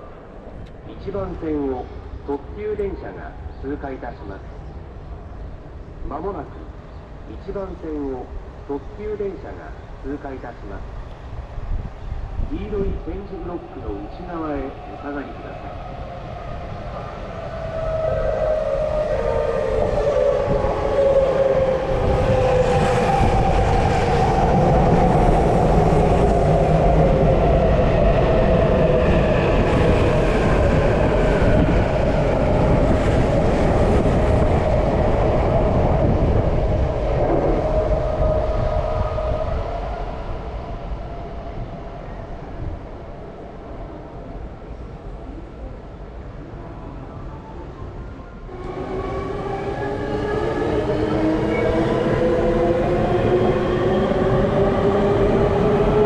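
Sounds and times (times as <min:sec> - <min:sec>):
train passing through station: 0:00.0 - 0:56.0
whining train tone: 0:12.1 - 0:45.5, 0:46.6 - 0:56.0.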